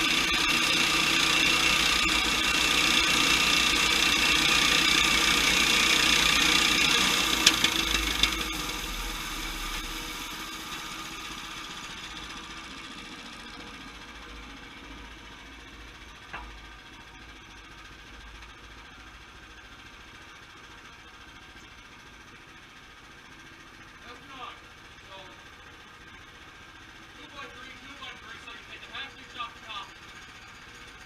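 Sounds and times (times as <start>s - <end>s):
sawmill engine winding down: 0.0s - 18.2s, 24.0s - 31.0s.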